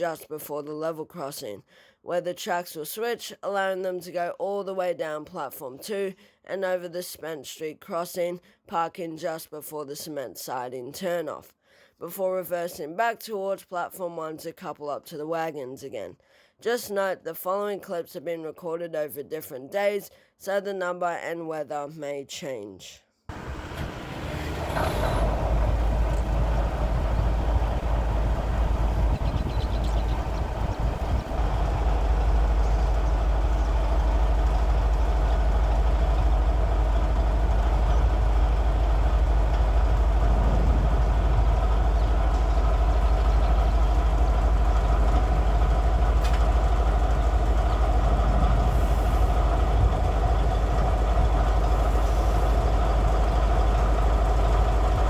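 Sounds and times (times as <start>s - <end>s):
diesel locomotive engine rumble: 23.3s - 55.0s.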